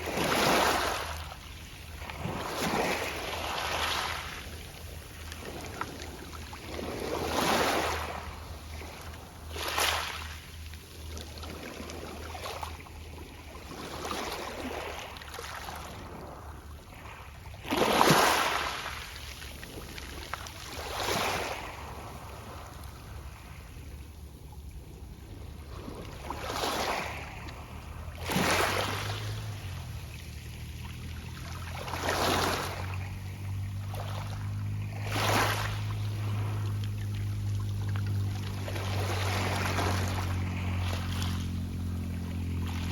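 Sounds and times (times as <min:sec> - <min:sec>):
waves breaking on pebbles: 0:00.0 - 0:23.8, 0:25.2 - 0:42.9
low steady hum: 0:32.6 - 0:42.9.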